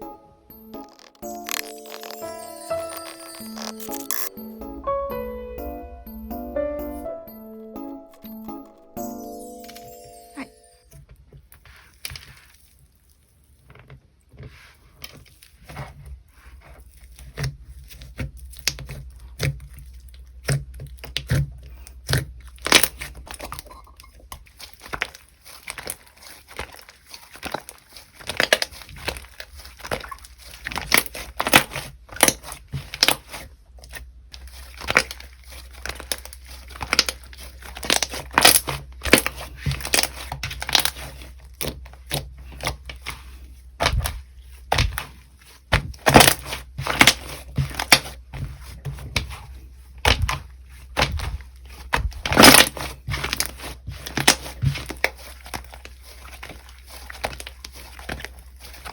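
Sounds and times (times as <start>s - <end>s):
slime popping and crackling: 0.6s - 4.3s, 34.4s - 42.7s.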